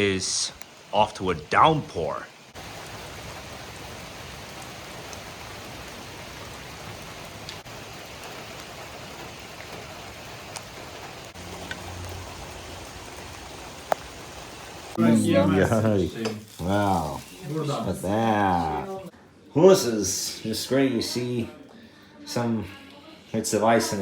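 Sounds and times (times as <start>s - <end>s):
heavy rain falling: 0.0s - 18.8s.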